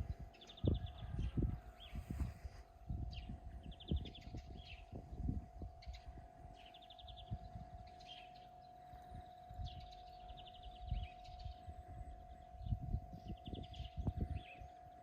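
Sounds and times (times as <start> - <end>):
faint steady hum: 0.0 - 15.0
bird chirps: 3.1 - 15.0
songbird trilling: 5.8 - 15.0.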